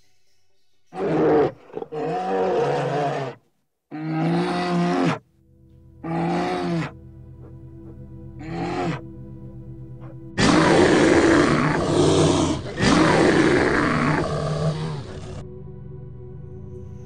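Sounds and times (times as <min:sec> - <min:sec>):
large animal roaring: 0:01.0 - 0:05.2, 0:06.0 - 0:07.0, 0:08.4 - 0:09.0, 0:10.4 - 0:15.4
background music: 0:03.9 - 0:17.0.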